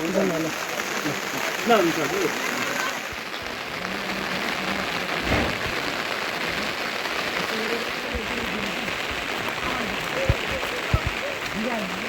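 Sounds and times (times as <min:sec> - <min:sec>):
heavy rain falling: 0:00.0 - 0:12.0
dull thump: 0:05.2 - 0:05.6.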